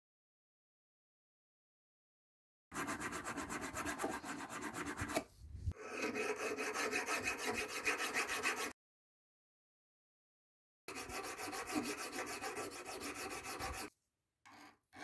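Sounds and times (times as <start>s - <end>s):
hand file rasping: 2.8s - 8.7s, 10.9s - 13.9s.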